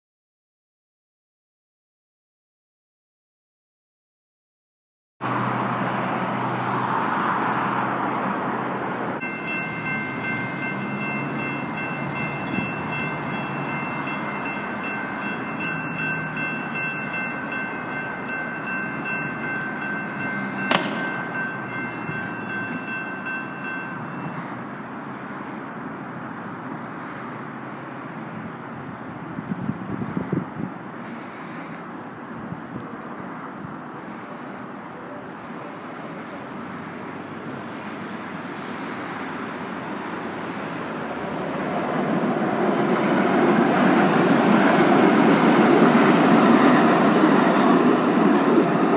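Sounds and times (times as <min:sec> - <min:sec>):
crossing warning bells ringing: 0:05.2 - 0:29.2, 0:32.9 - 0:48.5
light rail train passing: 0:05.2 - 0:48.9
traffic rumble: 0:05.2 - 0:48.9
sharp clang: 0:20.6 - 0:22.9.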